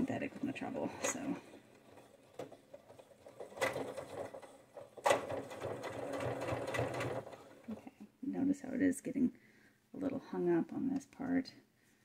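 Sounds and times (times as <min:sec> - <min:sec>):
sewing machine stitching: 0:00.0 - 0:08.0.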